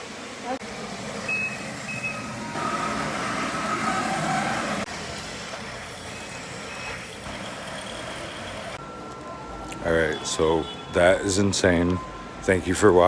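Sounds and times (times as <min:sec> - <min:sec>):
short electronic beeps: 0:01.3 - 0:02.3.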